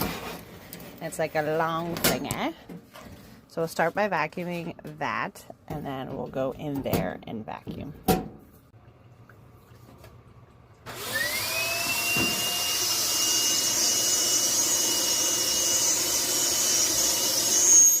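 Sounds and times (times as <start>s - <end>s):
vacuum cleaner motor whine: 10.9s - 18.0s.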